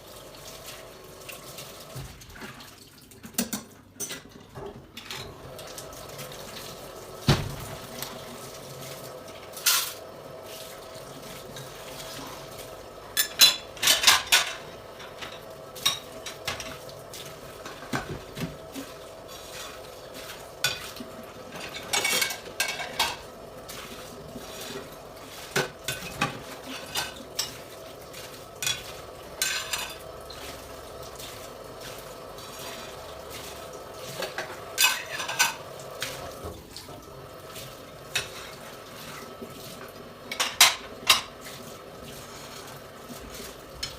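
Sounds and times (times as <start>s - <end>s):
dishes and cutlery clattering: 3.2s - 5.4s, 9.6s - 10.0s, 13.1s - 16.8s, 20.6s - 23.3s, 24.4s - 27.7s, 28.6s - 30.1s, 34.1s - 36.4s, 38.1s - 38.6s, 40.3s - 41.4s.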